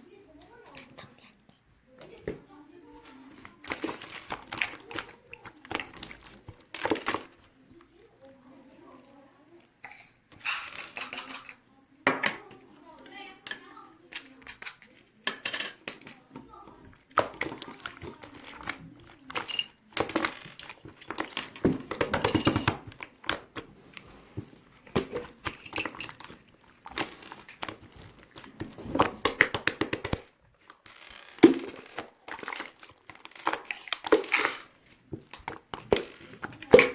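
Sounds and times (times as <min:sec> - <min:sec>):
slime crackling and popping: 0:24.9 - 0:36.9.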